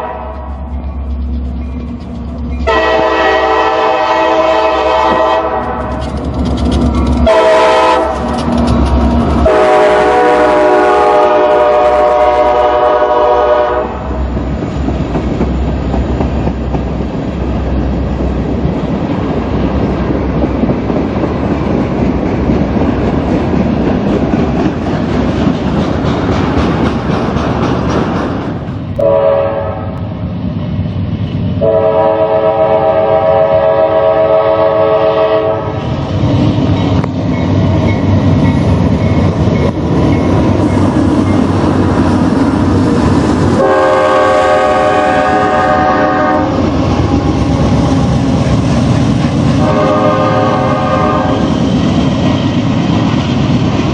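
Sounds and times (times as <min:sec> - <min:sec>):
train horn blowing: 0:00.0 - 0:00.8, 0:02.6 - 0:06.0, 0:07.2 - 0:08.3, 0:09.4 - 0:14.2, 0:29.0 - 0:30.0, 0:31.6 - 0:35.8, 0:43.6 - 0:48.6, 0:49.5 - 0:51.6
passing train rumble and clatter: 0:00.0 - 0:53.9.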